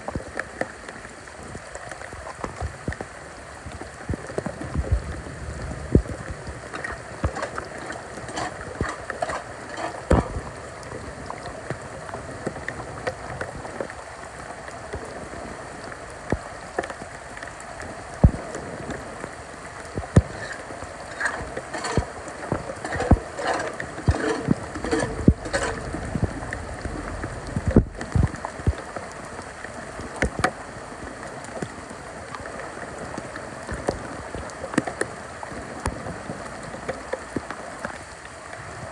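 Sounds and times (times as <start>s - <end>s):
floodwater flowing: 0.0s - 38.8s
rain falling: 0.0s - 38.9s
sharp knocks and splashes: 6.0s - 10.6s, 20.0s - 28.4s.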